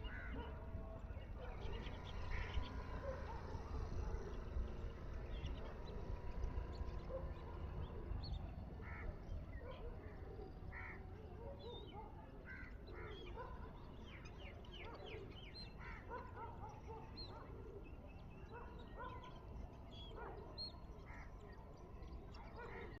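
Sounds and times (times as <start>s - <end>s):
wild birds calling: 0.0s - 23.0s.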